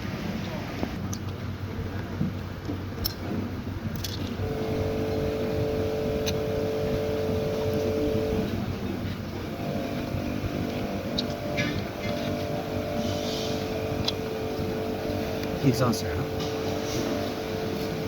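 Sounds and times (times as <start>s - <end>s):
engine droning: 4.2s - 18.0s.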